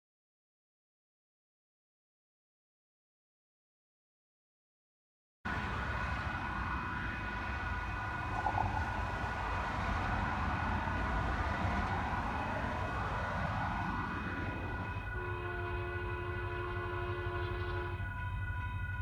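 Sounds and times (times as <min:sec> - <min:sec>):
steady high whine: 0:05.5 - 0:18.1
diesel locomotive rumble: 0:05.5 - 0:19.0.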